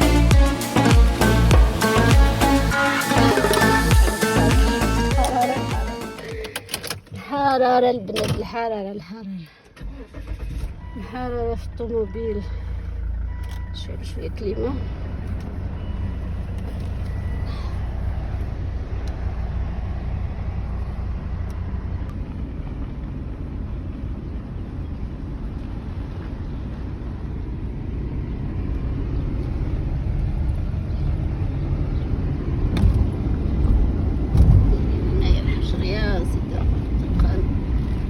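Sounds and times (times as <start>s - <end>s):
car engine and road noise: 0.0s - 38.0s
car bumps: 32.7s - 35.0s.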